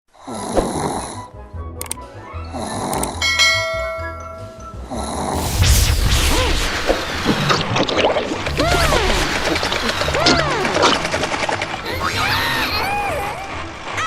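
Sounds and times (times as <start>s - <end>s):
cartoon snore: 0.2s - 1.3s, 2.5s - 3.2s
bell ringing: 3.2s - 4.8s
cartoon music: 8.5s - 13.7s.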